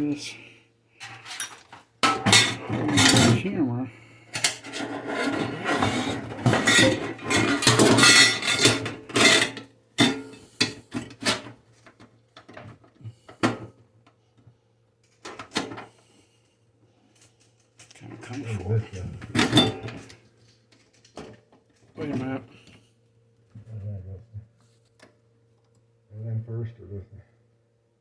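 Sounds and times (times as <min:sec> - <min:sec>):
rubbing and scraping of parts: 0:01.0 - 0:03.5, 0:04.2 - 0:11.6.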